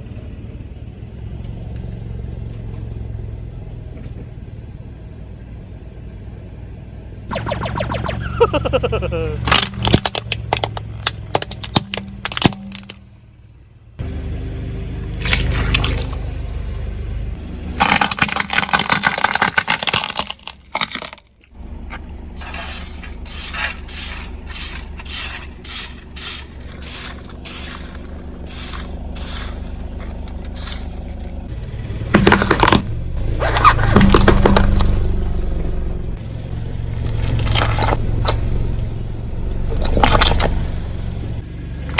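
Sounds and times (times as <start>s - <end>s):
tyre crushing brittle objects: 8.5s - 13.0s, 17.8s - 21.4s, 22.4s - 31.0s, 32.2s - 35.1s
low engine hum: 10.7s - 17.8s, 21.6s - 41.9s.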